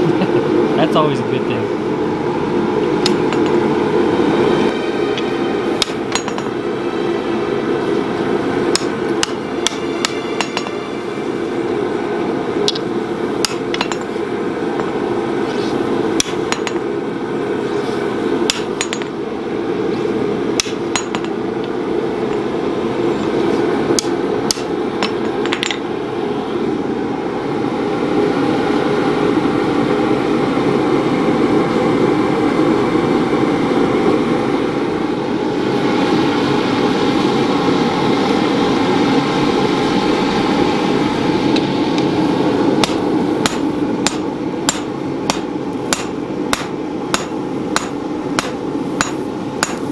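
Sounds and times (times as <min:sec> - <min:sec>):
steady rushing noise: 0:00.0 - 0:49.9
hammer striking metal on anvil: 0:03.1 - 0:03.6, 0:05.2 - 0:06.6, 0:08.7 - 0:11.0, 0:12.7 - 0:14.2, 0:16.2 - 0:16.9, 0:18.5 - 0:19.2, 0:20.6 - 0:21.4, 0:24.0 - 0:25.9, 0:42.8 - 0:49.9.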